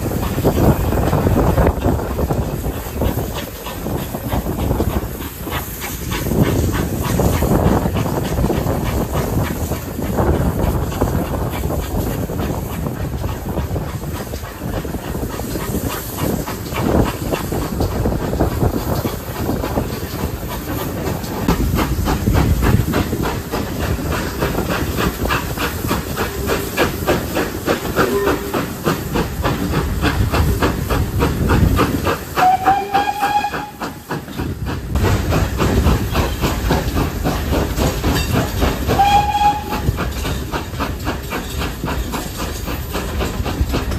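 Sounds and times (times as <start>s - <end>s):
steam hissing: 0.0s - 43.9s
steam locomotive exhaust beats: 0.0s - 43.9s
locomotive whistle toot: 28.0s - 28.5s, 32.4s - 33.8s, 38.9s - 39.9s.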